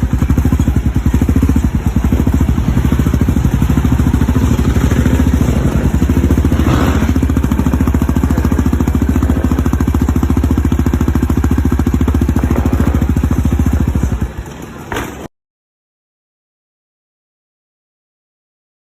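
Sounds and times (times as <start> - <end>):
quad bike engine running: 0.0 - 15.3.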